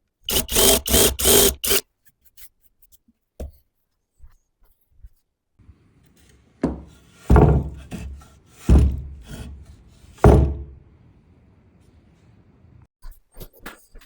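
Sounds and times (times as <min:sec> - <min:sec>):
heavy thuds: 0:06.6 - 0:10.9.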